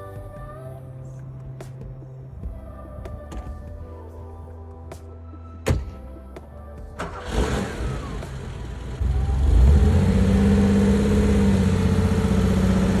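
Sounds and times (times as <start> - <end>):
car engine revving: 7.0 - 13.0.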